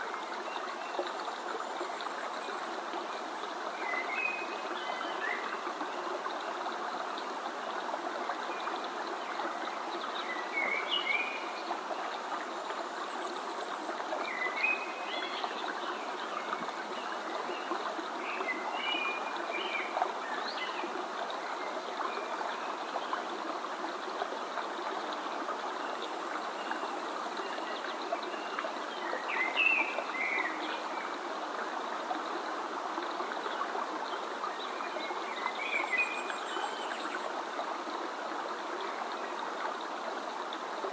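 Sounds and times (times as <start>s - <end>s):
water stream flowing: 0.0s - 40.9s.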